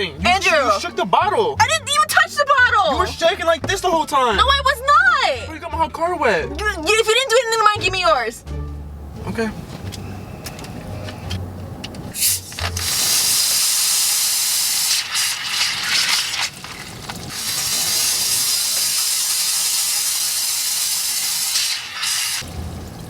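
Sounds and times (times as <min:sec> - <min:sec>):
soda foaming with loud hiss: 0:12.2 - 0:22.8.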